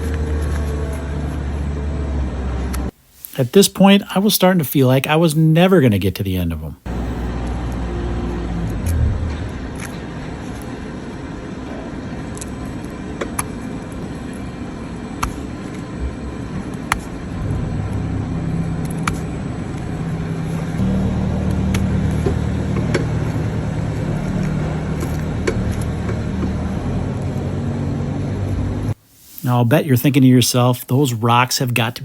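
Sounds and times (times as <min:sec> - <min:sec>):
low machine drone: 0:00.0 - 0:02.9, 0:06.9 - 0:29.0.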